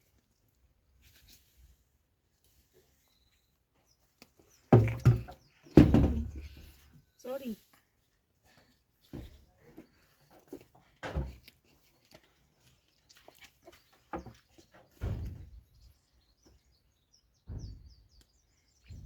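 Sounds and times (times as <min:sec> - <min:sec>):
birds chirping faintly: 0:02.5 - 0:19.0
dull thuds: 0:04.7 - 0:06.7, 0:14.9 - 0:15.8, 0:17.4 - 0:18.1.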